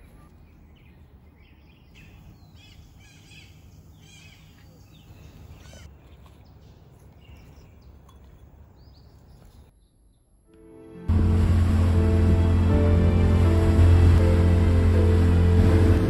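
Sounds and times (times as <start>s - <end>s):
small birds chirping: 0.0s - 10.4s
low steady rumble: 11.1s - 16.0s.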